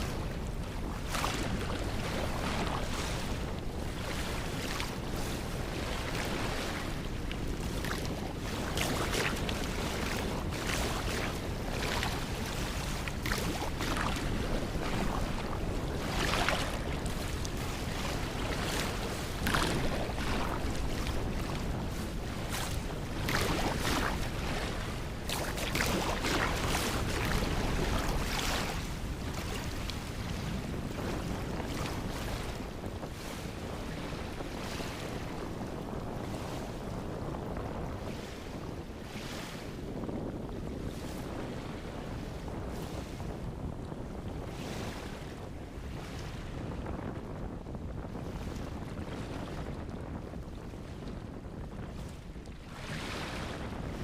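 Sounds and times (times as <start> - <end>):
sea waves breaking: 0.0 - 54.0
wind rumbling on microphone: 0.0 - 54.0.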